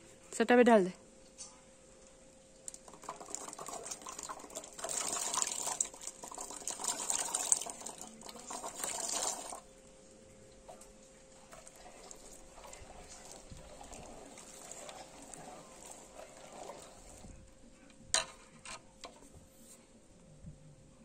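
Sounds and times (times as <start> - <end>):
water pouring and splashing: 2.6 - 9.7, 10.6 - 17.4.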